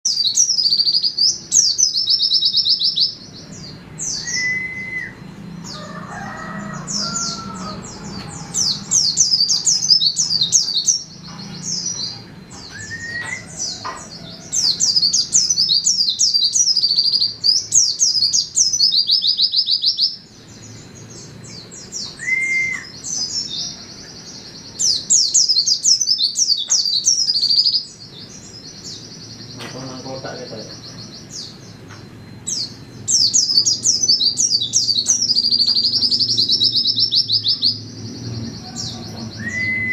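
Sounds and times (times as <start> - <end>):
bird twittering song: 0.0 - 39.9
low slurred whistle: 4.2 - 5.3, 39.4 - 39.9.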